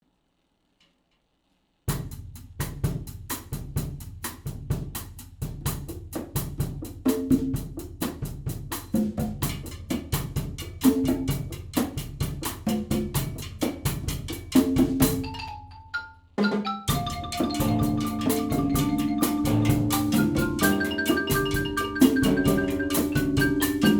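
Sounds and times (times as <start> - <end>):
percussion ensemble drumming: 1.9 - 23.9
pitched drum tones: 2.0 - 23.9.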